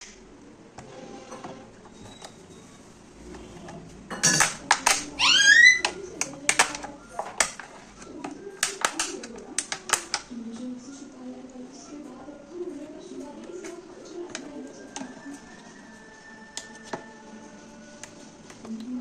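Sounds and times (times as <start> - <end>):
clicks and taps of objects: 4.2 - 5.1, 5.8 - 10.3.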